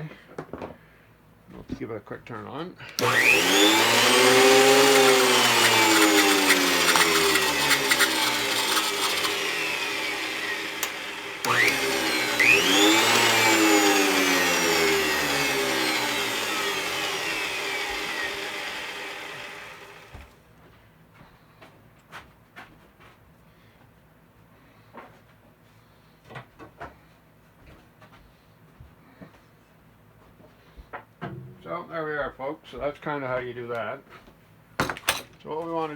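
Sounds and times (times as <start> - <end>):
planer motor whine: 3.0 - 20.4.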